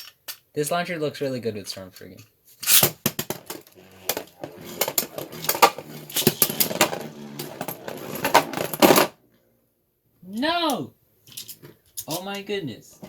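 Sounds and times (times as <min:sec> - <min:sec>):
spinning tops clashing: 0:02.7 - 0:09.0.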